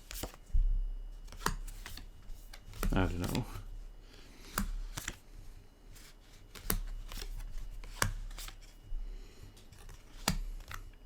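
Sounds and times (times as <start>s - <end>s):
trading cards flipped by hand: 0.0s - 0.4s, 1.2s - 3.6s, 4.4s - 5.2s, 6.0s - 8.7s, 9.6s - 10.9s
cards snapping and clicking: 1.3s - 3.6s, 4.4s - 5.2s, 6.4s - 8.6s, 9.6s - 11.0s.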